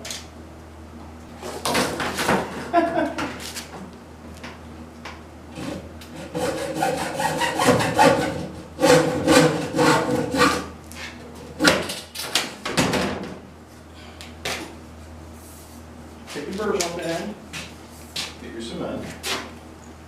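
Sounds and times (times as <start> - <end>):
hand saw cutting plastic pipe: 5.6 - 10.7.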